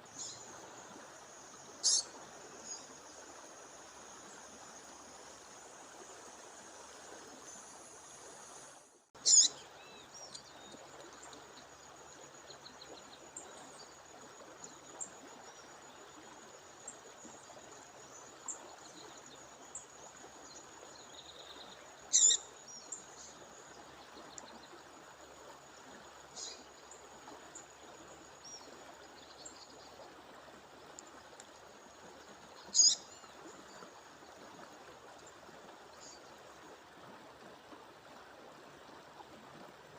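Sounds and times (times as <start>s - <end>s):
bird calling: 1.8s - 2.1s, 9.2s - 9.6s, 22.1s - 22.4s, 32.7s - 33.0s
faint bird chirps: 1.8s - 3.0s, 9.2s - 10.8s, 21.1s - 23.4s, 32.6s - 33.8s.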